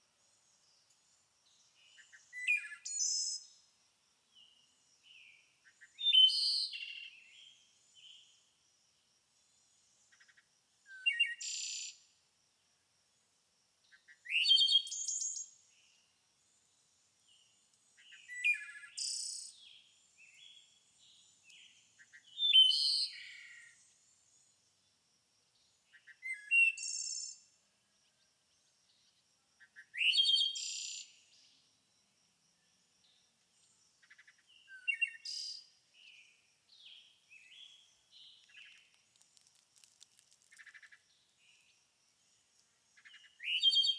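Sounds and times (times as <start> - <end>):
songbird singing: 0.1 - 8.6, 9.4 - 12.2, 13.8 - 43.9
bird chirps: 25.9 - 27.5, 34.0 - 39.0, 43.0 - 43.9.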